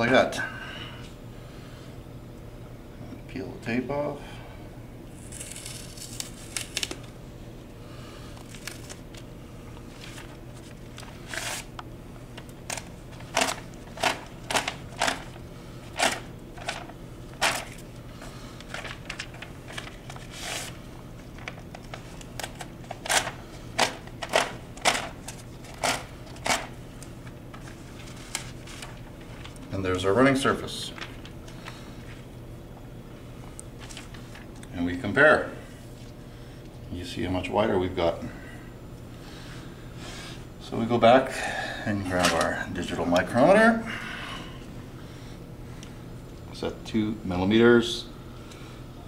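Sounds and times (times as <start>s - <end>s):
steady low hum: 0.0s - 49.0s
tape and paper ripping: 5.2s - 7.1s, 8.4s - 9.2s, 10.0s - 11.7s, 18.7s - 20.8s, 21.4s - 26.7s.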